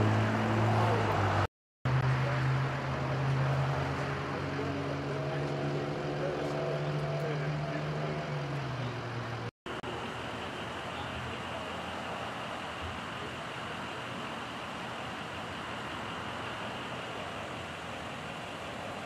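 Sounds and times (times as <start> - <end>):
vehicle engine idling: 8.5 - 19.0.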